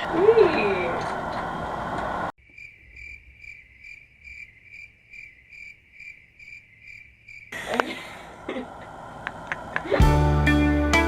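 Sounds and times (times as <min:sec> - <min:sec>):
cricket chirping: 0:02.4 - 0:07.9.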